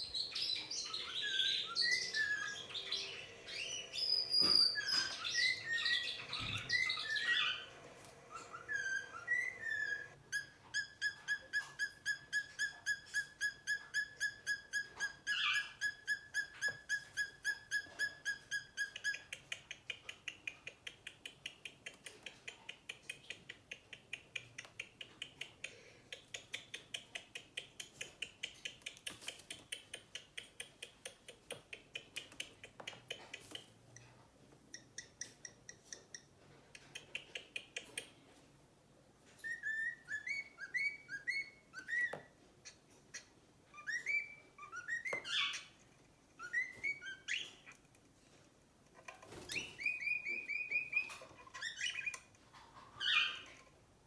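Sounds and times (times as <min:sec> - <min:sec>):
bird chirps and whistles: 0:00.1 - 0:07.7, 0:08.3 - 0:19.2, 0:39.4 - 0:42.2, 0:43.8 - 0:45.6.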